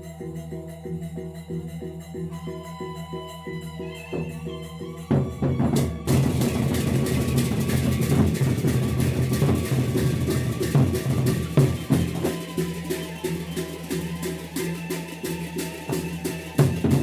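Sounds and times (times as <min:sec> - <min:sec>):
cymbals clashing: 0:02.5 - 0:17.0
large drums beating: 0:05.1 - 0:17.0.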